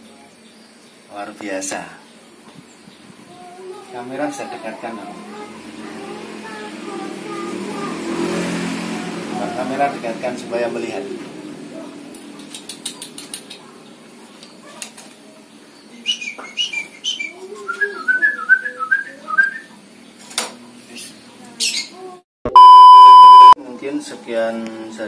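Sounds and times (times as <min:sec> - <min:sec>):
electronic beep tone: 0:22.5 - 0:23.6.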